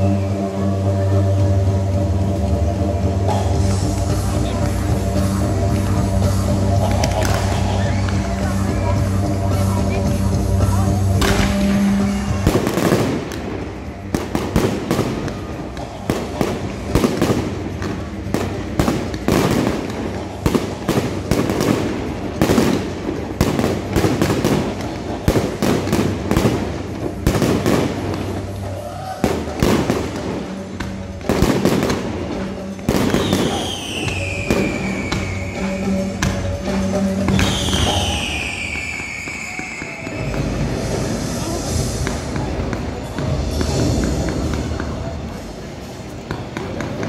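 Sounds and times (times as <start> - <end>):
fireworks bangs and crackles: 0.0 - 47.0
music playing: 0.0 - 47.0
falling firework whistle: 33.0 - 36.2, 37.3 - 41.6.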